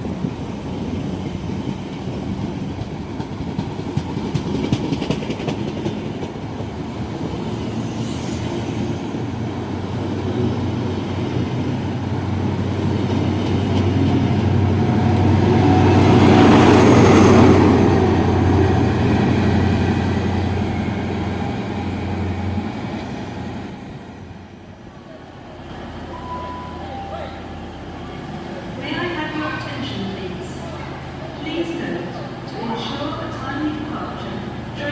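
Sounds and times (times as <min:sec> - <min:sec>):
train passing rumble: 0:00.0 - 0:34.9.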